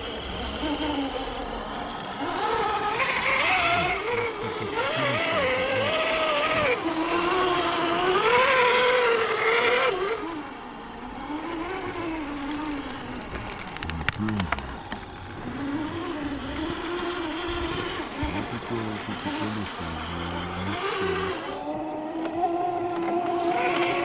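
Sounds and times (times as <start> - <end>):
electric motor and gearbox whining: 0.0 - 24.0.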